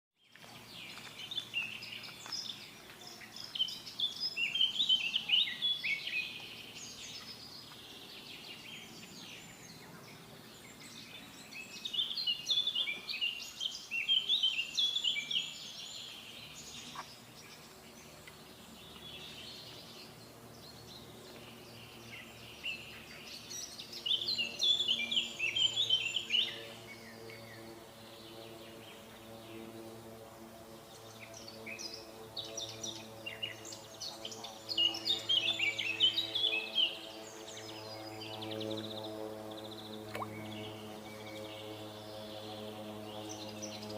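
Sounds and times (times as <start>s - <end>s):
songbird twittering: 0.7s - 21.0s.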